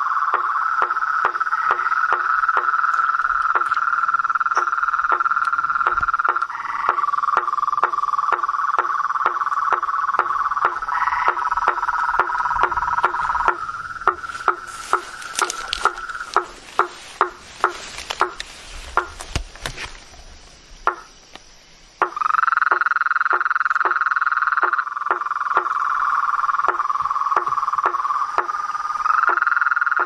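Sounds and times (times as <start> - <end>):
short knocking animal calls: 0.3 - 19.5, 20.9 - 21.1, 22.0 - 30.0
steady high animal trill: 0.8 - 17.3.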